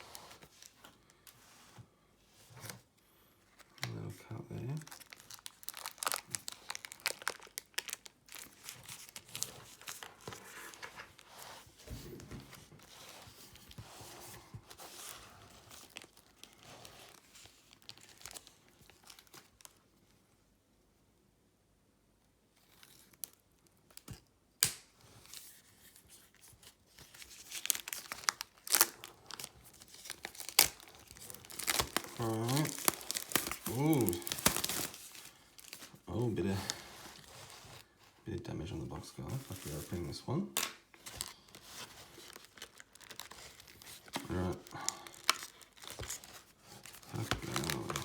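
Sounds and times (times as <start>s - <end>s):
plastic wrap crinkling and tearing: 3.5s - 11.8s, 12.6s - 19.8s, 22.6s - 38.1s, 39.0s - 48.0s
sharp plastic snaps: 24.0s - 24.9s.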